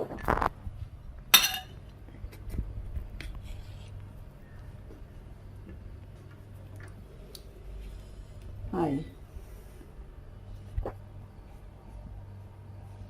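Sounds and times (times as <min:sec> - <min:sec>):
low steady hum: 0:00.0 - 0:13.0
kitchenware clinking: 0:01.3 - 0:01.8.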